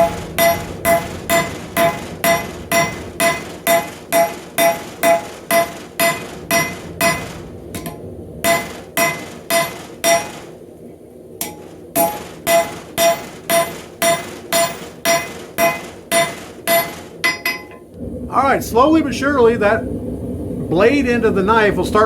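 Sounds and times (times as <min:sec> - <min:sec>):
hammer ringing on anvil: 0:00.0 - 0:10.5, 0:11.4 - 0:17.8.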